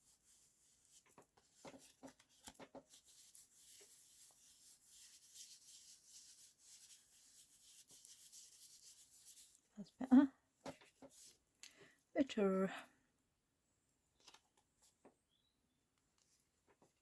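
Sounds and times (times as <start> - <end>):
scratching across paper: 0.0 - 9.6, 10.6 - 11.4
light taps on paper: 1.0 - 3.0.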